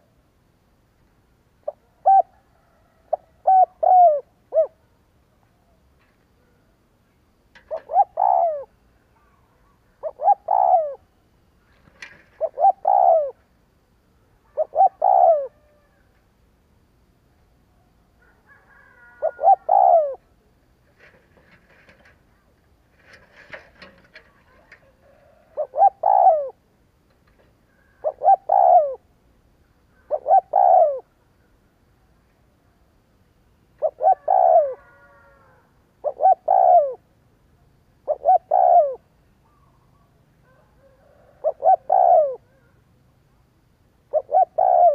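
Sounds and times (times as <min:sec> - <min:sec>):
dove cooing: 0:01.6 - 0:06.8, 0:07.6 - 0:13.5, 0:14.2 - 0:16.1, 0:18.2 - 0:26.7, 0:27.3 - 0:29.1, 0:29.9 - 0:31.2, 0:33.8 - 0:37.1, 0:38.0 - 0:42.9, 0:44.1 - 0:44.9
faint scratchy chirps: 0:17.2 - 0:29.0.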